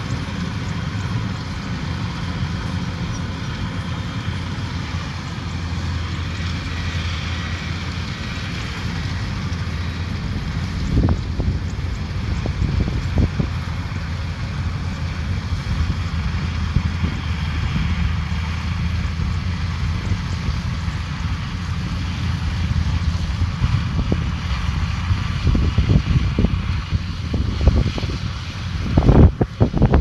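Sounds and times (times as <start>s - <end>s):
combine harvester engine hum: 0.0s - 30.0s
threshing hiss: 0.0s - 30.0s
wind on microphone: 10.0s - 18.4s, 21.8s - 30.0s.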